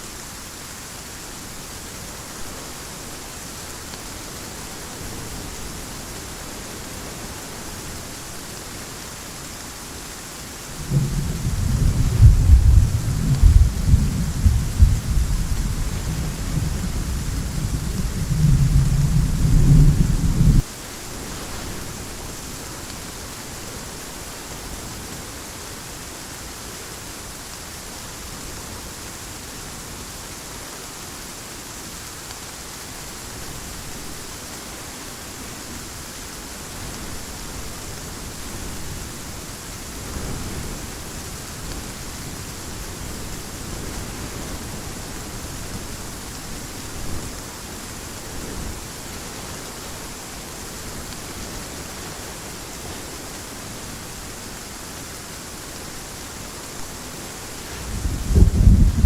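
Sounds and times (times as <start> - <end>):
heavy rain hiss: 0.0 - 59.0
low rolling thunder: 10.6 - 20.7, 57.6 - 59.0.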